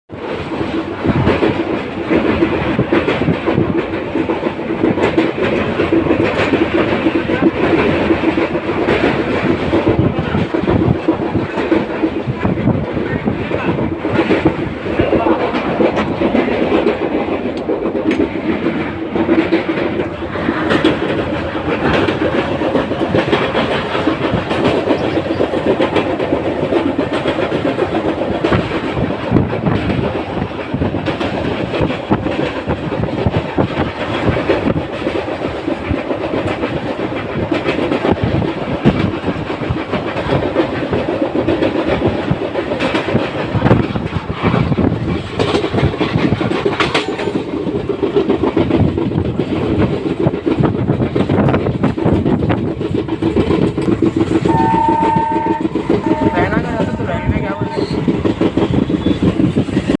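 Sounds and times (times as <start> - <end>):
train wheels clattering on rails: 0.1 - 60.0.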